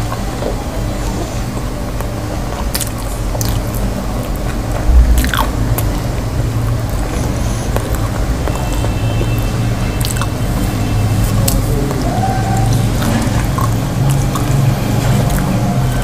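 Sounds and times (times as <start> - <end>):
steady low hum: 0.0 - 16.0
person chewing food: 2.0 - 6.1, 7.8 - 10.6, 11.2 - 16.0.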